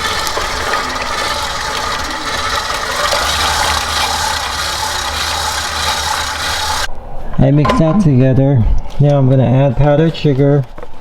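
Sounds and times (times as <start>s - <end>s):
electric mixer running: 0.0s - 6.9s.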